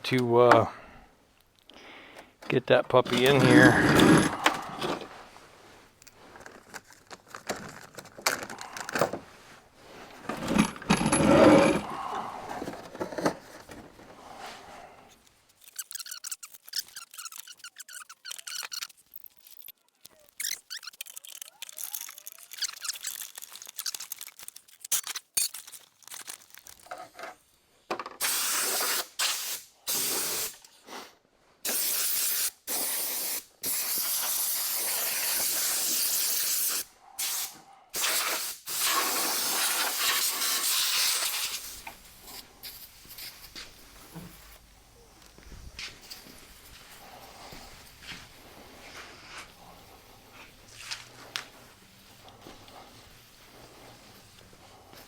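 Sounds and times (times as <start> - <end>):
pressurised spray hissing: 31.7 - 41.8.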